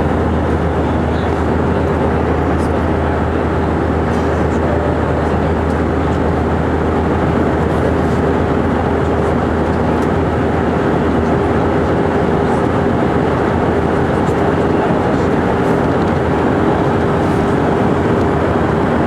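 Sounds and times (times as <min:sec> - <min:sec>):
steady mid-pitched tone: 0:00.0 - 0:08.3
constant low hum: 0:00.0 - 0:19.0
jet engines in cabin: 0:00.0 - 0:19.0
rushing air: 0:13.5 - 0:19.0.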